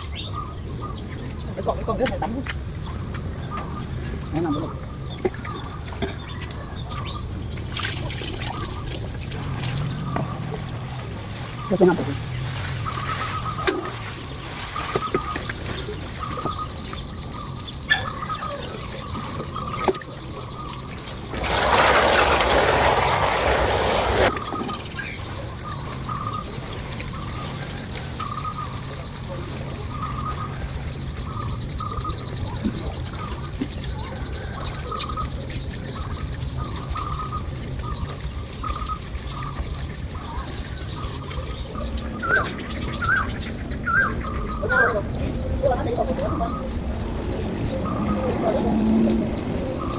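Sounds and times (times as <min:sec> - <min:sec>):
faint calls: 0:00.0 - 0:49.9
water trickling: 0:07.6 - 0:33.8, 0:34.9 - 0:41.8
water gushing: 0:07.7 - 0:24.6, 0:26.4 - 0:31.5, 0:36.5 - 0:41.8
steady low rumble: 0:08.4 - 0:17.8.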